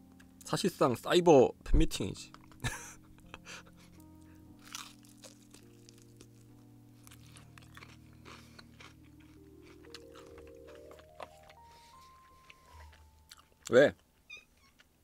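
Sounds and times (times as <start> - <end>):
soft background music: 0.0 - 15.0
person chewing crunchy food: 3.9 - 15.0.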